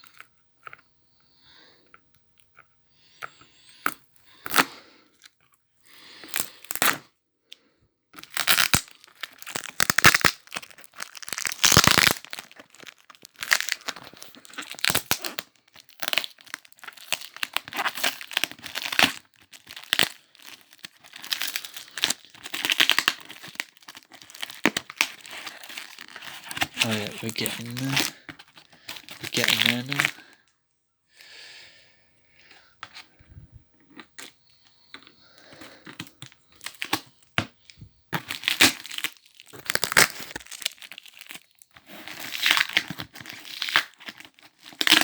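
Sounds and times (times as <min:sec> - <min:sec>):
box packaging ripping and crinkling: 0:08.2 - 0:30.3, 0:35.8 - 0:37.5, 0:38.1 - 0:45.0.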